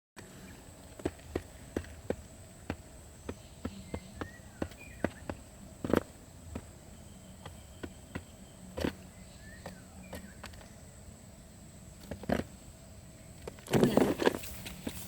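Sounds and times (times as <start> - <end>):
faint short chirping calls: 3.1 - 5.7, 6.6 - 11.2.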